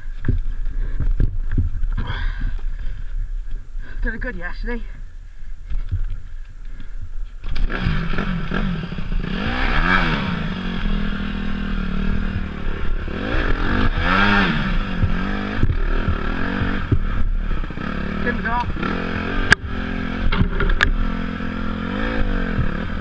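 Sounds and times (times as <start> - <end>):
dirt bike engine revving: 7.4 - 23.0
clatters: 18.6 - 21.0.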